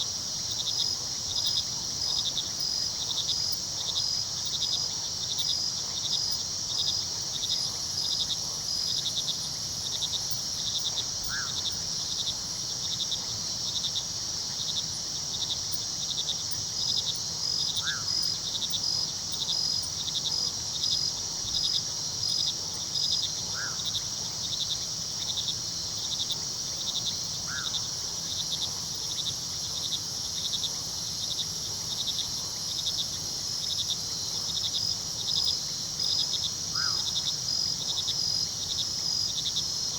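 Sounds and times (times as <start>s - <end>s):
crickets and insects trilling: 0.0s - 39.9s.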